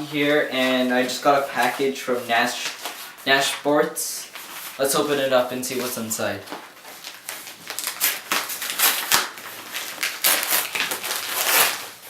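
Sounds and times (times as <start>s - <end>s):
packaging being torn open: 7.2s - 12.0s.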